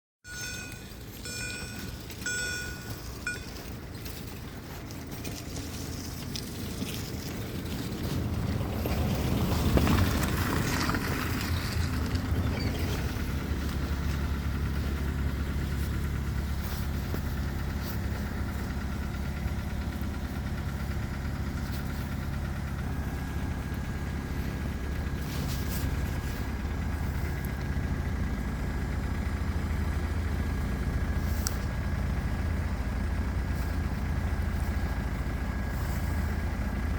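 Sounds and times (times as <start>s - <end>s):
train passing: 0.3s - 3.5s
low engine hum: 0.3s - 36.9s.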